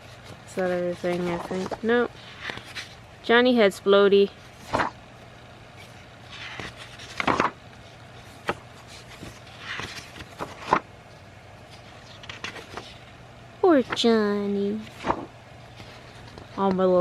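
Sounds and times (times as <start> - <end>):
paper rustling: 0.0 - 3.0, 4.4 - 5.0, 5.7 - 13.2, 13.8 - 16.8
sketchbook pages turning: 0.0 - 3.0, 4.4 - 5.0, 5.7 - 13.2, 13.8 - 16.9.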